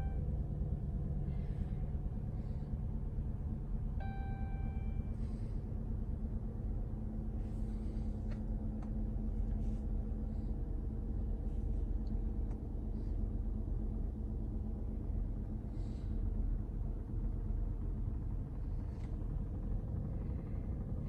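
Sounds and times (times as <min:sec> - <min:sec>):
car engine idling: 0:00.0 - 0:21.0
short electronic chime: 0:04.0 - 0:05.0.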